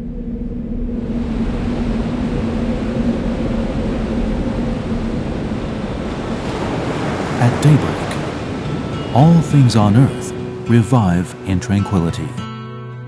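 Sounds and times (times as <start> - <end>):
low hum: 0.0 - 11.6
steady rumbling noise: 0.0 - 12.3.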